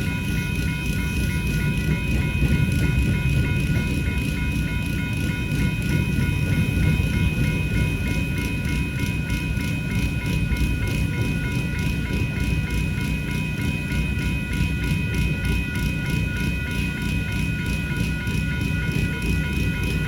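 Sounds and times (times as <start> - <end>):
grade crossing bells ringing: 0.0 - 20.0.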